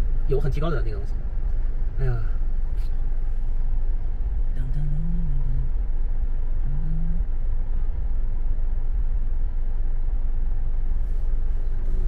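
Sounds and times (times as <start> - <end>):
car driving road rumble: 0.0 - 12.0
man humming: 2.0 - 2.4.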